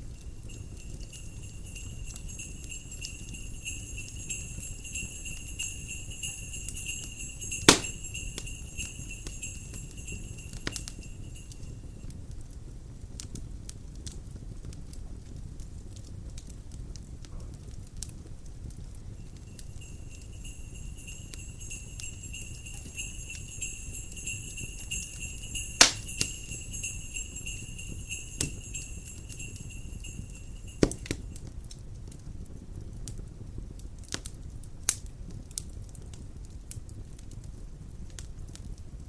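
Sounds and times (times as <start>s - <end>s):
fire popping: 0.0s - 12.0s, 18.0s - 31.8s
sleigh bells jingling: 0.0s - 12.1s, 19.0s - 31.5s
crackling wood fire: 0.0s - 39.0s
low rumble of wind: 0.0s - 39.0s.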